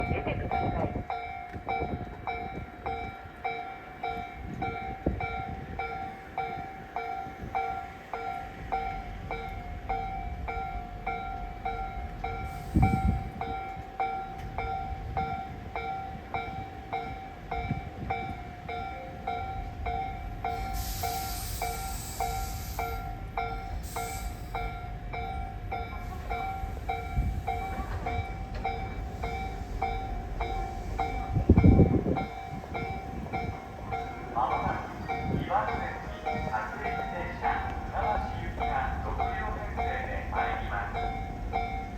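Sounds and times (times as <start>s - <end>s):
level-crossing warning bell: 0.0s - 41.9s
train rumble: 0.0s - 41.9s
air hiss: 20.6s - 23.1s, 23.7s - 24.7s.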